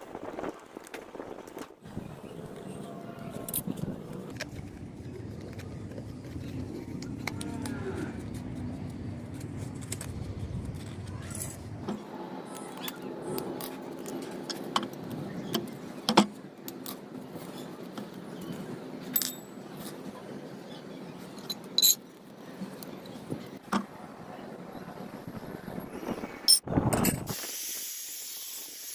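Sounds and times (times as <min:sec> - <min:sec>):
low hum: 0:01.8 - 0:17.4
metal parts and tools clinking: 0:02.5 - 0:04.4, 0:19.0 - 0:19.6, 0:21.4 - 0:22.2.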